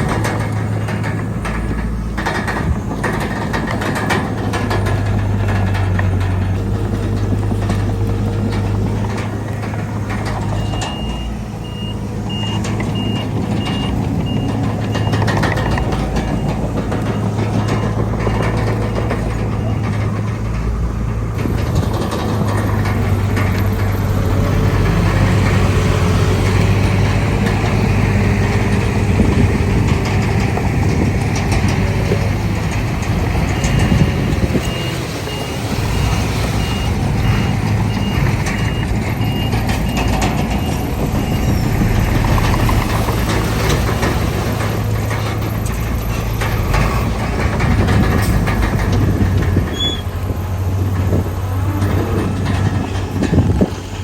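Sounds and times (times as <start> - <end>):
heavy diesel machinery running: 0.0 - 54.0
reversing alarm beeps: 10.5 - 20.0, 33.6 - 42.7.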